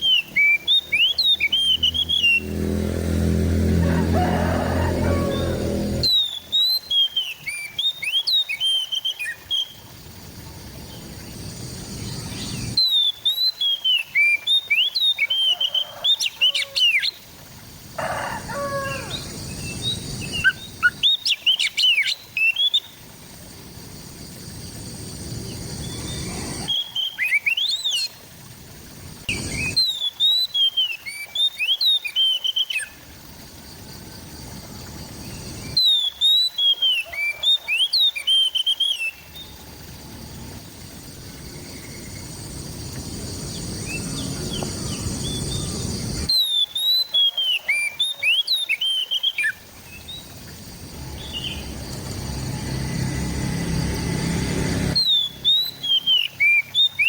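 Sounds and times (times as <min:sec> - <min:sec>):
bird singing whistles: 0:00.0 - 0:02.4, 0:06.1 - 0:09.8, 0:12.4 - 0:16.0, 0:25.8 - 0:28.0, 0:29.4 - 0:32.9, 0:35.7 - 0:37.4, 0:38.0 - 0:39.2, 0:43.8 - 0:49.6, 0:55.0 - 0:57.0.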